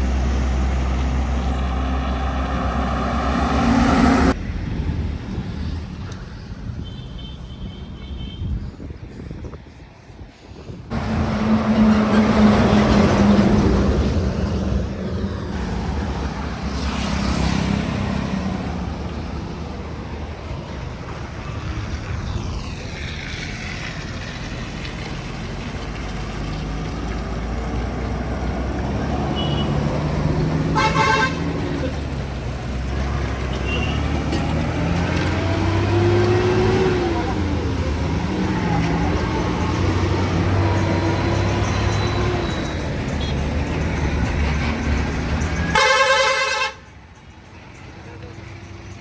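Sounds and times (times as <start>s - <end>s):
heavy trucks passing: 0.0s - 9.5s, 10.5s - 49.0s
truck horn blast: 29.0s - 32.1s, 33.4s - 34.4s, 45.6s - 46.9s.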